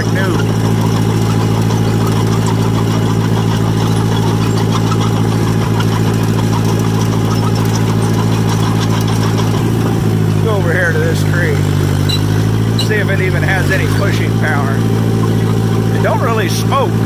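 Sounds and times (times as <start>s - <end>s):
dozer engine running: 0.0s - 17.0s.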